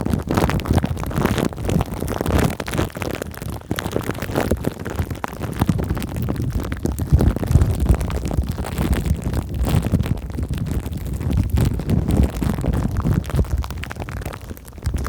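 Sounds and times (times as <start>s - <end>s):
cling film and foam crackling: 0.0s - 15.0s
heavy low rumble: 11.6s - 15.0s.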